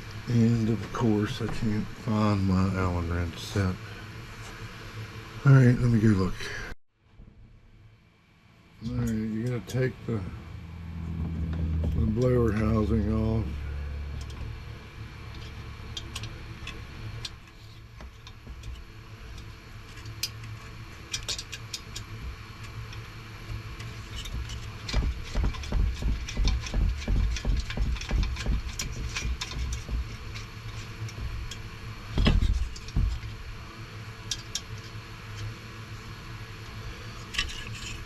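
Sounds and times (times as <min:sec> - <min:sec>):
low thumps: 0:10.4 - 0:13.0, 0:24.3 - 0:30.2, 0:32.2 - 0:33.4.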